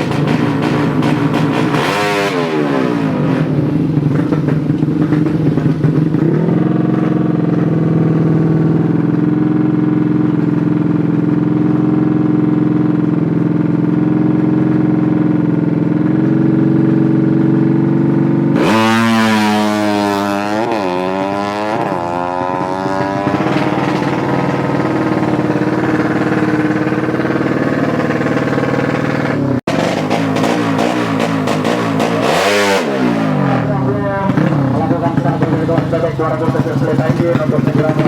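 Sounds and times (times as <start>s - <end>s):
motorcycle engine revving hard: 0.0s - 38.0s.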